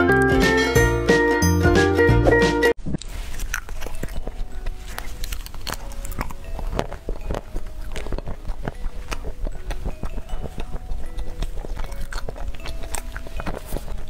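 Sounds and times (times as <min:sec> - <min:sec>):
crunching chocolate pieces: 0:03.1 - 0:14.0.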